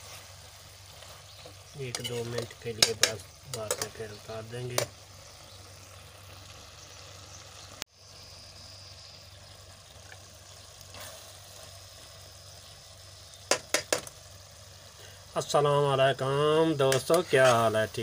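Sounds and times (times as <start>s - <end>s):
okra sizzling in a pan: 0.0s - 18.0s.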